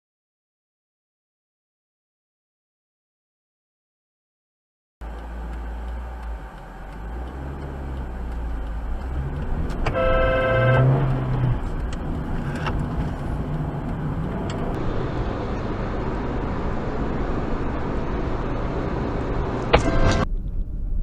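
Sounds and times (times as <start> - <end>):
vehicle road and engine noise: 5.0 - 21.0.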